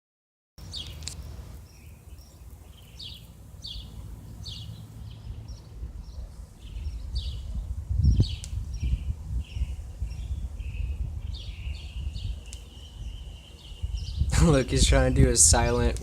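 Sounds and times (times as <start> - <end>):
bird chirping: 0.6 - 14.3.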